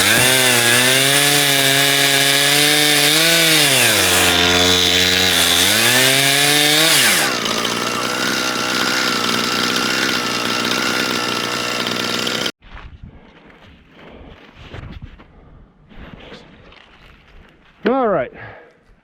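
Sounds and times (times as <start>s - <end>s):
chainsaw cutting log: 0.0s - 12.6s.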